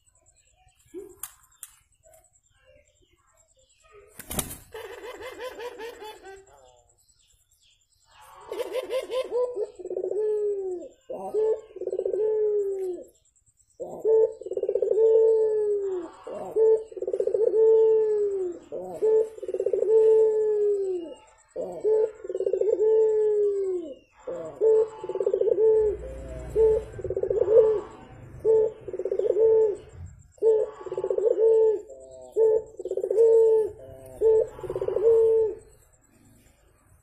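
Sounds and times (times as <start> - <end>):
dove cooing: 4.7 - 6.5, 8.3 - 13.2, 13.8 - 35.9.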